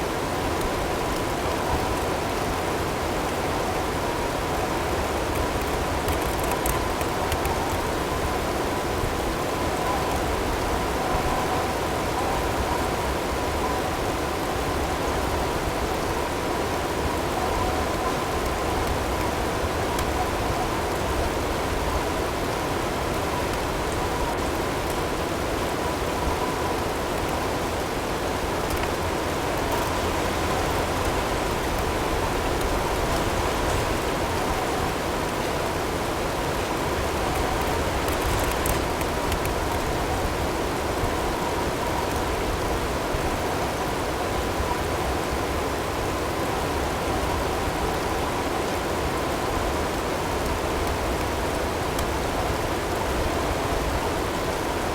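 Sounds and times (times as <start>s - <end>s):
faint hail ticks: 5.3s - 8.1s, 36.9s - 40.4s.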